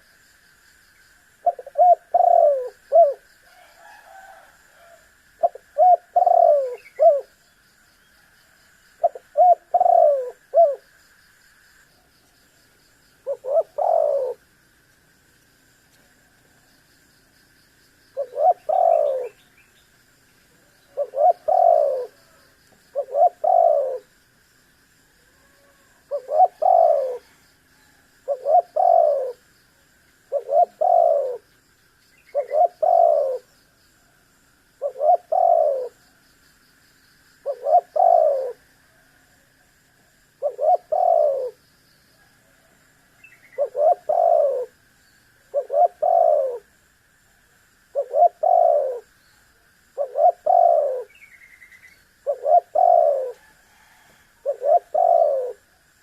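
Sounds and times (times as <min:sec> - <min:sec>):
dove cooing: 0:01.4 - 0:07.4, 0:09.0 - 0:10.9, 0:13.2 - 0:14.5, 0:18.1 - 0:19.5, 0:20.6 - 0:24.2, 0:25.3 - 0:29.5, 0:30.3 - 0:31.5, 0:32.3 - 0:33.5, 0:34.8 - 0:36.0, 0:37.4 - 0:39.0, 0:40.4 - 0:41.6, 0:42.2 - 0:44.8, 0:45.5 - 0:46.8, 0:47.9 - 0:49.1, 0:50.0 - 0:51.4, 0:52.2 - 0:55.8.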